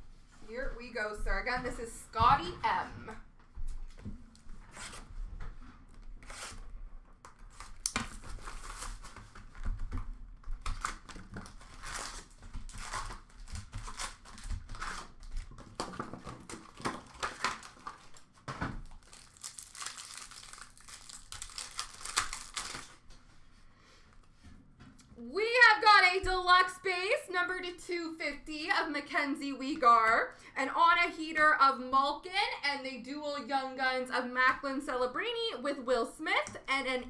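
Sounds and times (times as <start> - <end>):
foil wrappers crinkling: 7.4 - 23.2.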